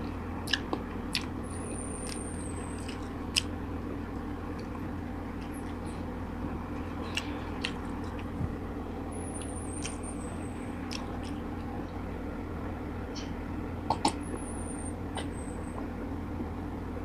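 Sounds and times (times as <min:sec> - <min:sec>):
low background hum: 0:00.0 - 0:17.0
chewing clicks and smacks: 0:00.4 - 0:01.3, 0:02.8 - 0:03.5, 0:07.0 - 0:08.4, 0:09.4 - 0:10.0, 0:10.9 - 0:11.4, 0:13.9 - 0:14.3
faint high chirp: 0:09.1 - 0:10.6, 0:14.2 - 0:15.8.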